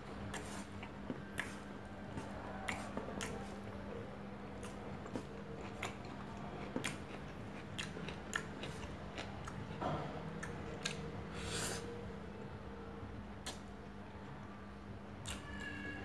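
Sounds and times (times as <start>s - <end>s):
low steady hum: 0.0s - 16.0s
chewing and lip-smacking: 0.3s - 3.9s, 4.5s - 11.1s, 13.4s - 13.7s, 15.2s - 15.7s.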